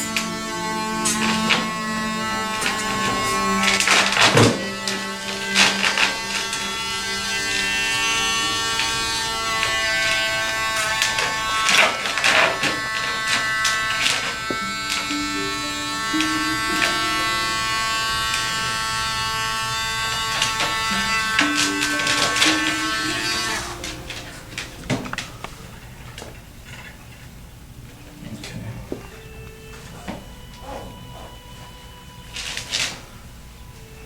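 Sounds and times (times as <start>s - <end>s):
electric grooming clipper buzzing: 0.0s - 25.5s
background music: 0.0s - 25.9s, 27.4s - 34.0s.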